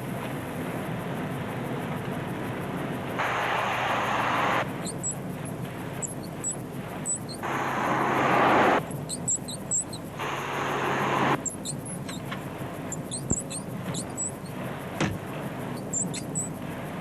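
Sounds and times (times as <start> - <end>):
hissing noise bursts with hum: 0.0 - 17.0
short high-pitched squeaks: 4.1 - 10.4, 11.3 - 14.6, 15.6 - 16.6.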